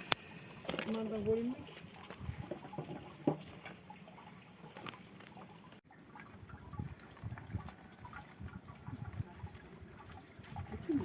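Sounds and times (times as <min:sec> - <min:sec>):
liquid dripping and trickling: 0:00.0 - 0:11.0.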